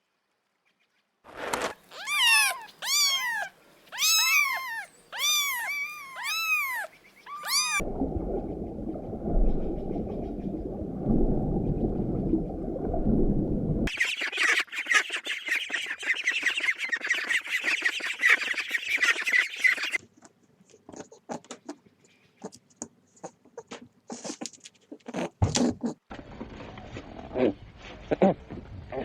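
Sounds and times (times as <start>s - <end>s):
cat meowing: 1.9s - 7.8s
steady low rumble: 7.8s - 13.9s.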